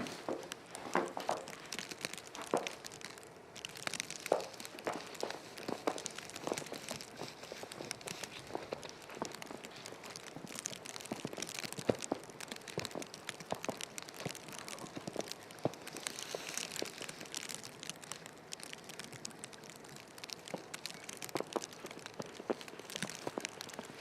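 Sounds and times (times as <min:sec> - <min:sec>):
footsteps crunching in snow: 0:00.0 - 0:02.9.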